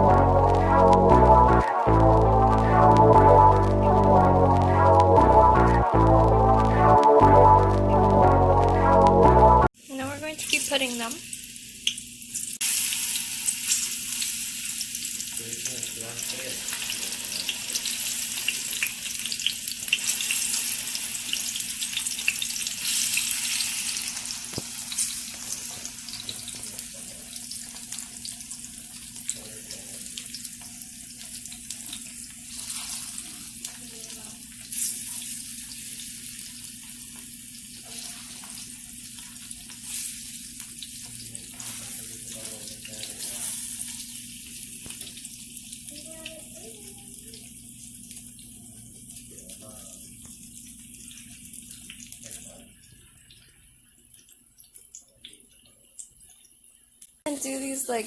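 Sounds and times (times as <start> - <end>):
banana slices sizzling in a pan: 9.8 - 52.6.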